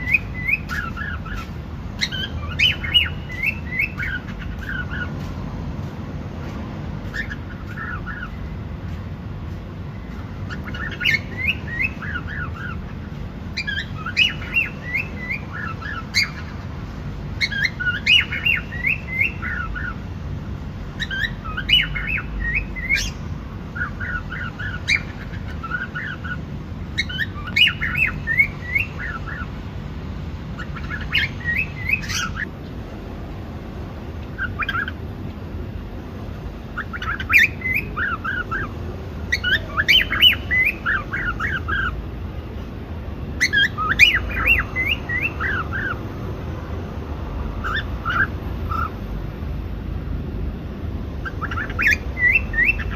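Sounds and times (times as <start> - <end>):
cockatiel chirping: 0.0 - 5.1, 7.1 - 8.4, 10.5 - 16.5, 17.4 - 20.0, 21.0 - 23.2, 23.8 - 29.5, 30.6 - 32.5, 34.3 - 35.0, 36.8 - 38.7, 39.3 - 42.0, 43.4 - 46.0, 47.6 - 49.0, 51.2 - 52.9.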